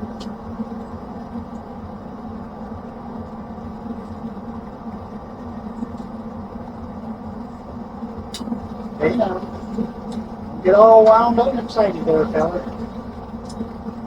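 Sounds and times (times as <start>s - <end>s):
grill motor and fan hum: 0.0s - 14.0s
sharp click: 8.3s - 8.6s.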